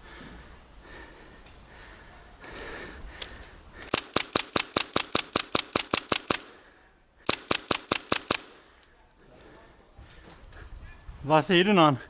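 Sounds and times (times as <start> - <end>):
airsoft rifle shots: 3.9 - 6.6, 7.2 - 8.7.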